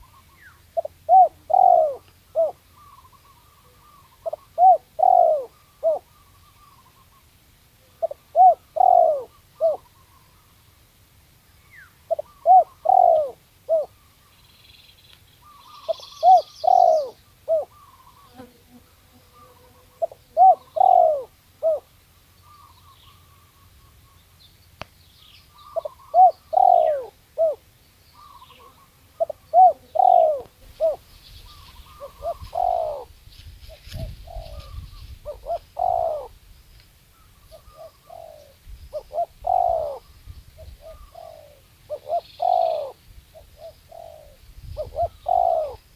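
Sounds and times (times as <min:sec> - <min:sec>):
small birds chirping: 0:00.0 - 0:10.8, 0:11.4 - 0:18.5, 0:19.2 - 0:45.9
dove cooing: 0:00.8 - 0:07.0, 0:07.9 - 0:10.3, 0:12.1 - 0:14.0, 0:15.5 - 0:18.4, 0:19.4 - 0:21.9, 0:25.6 - 0:36.4, 0:37.2 - 0:45.9.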